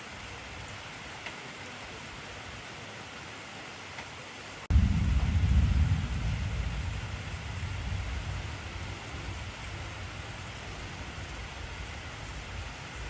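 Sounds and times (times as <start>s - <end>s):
heavy rain: 0.0s - 13.0s
deep rumble of thunder: 4.7s - 13.0s.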